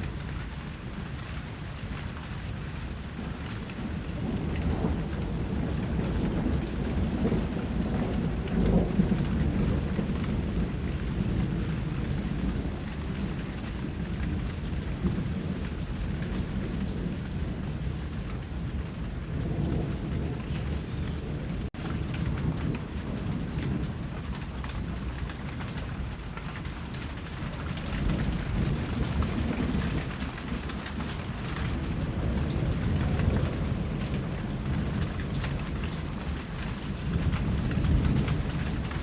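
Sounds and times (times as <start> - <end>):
low thunder rumble: 0.0 - 39.0
steady rain: 0.0 - 39.0.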